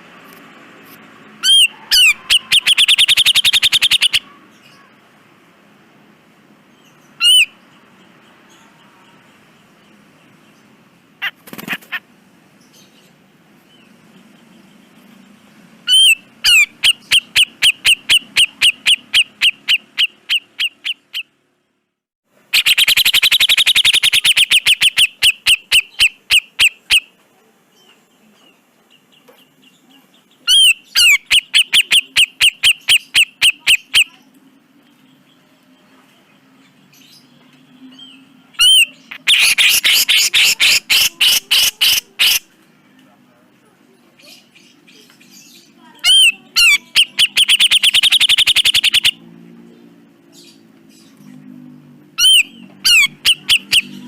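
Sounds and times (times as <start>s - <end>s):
bulbul singing sharp notes: 1.4s - 4.3s, 22.6s - 27.0s, 46.1s - 49.3s, 52.2s - 54.0s.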